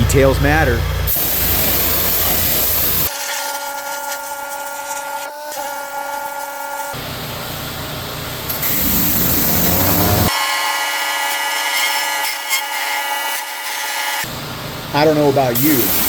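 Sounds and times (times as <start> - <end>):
machine running: 0.0 - 3.1, 7.0 - 11.2
steady whine: 0.0 - 3.1, 7.0 - 10.4
pressure washer spraying: 1.1 - 3.4, 8.5 - 10.3, 15.6 - 16.0.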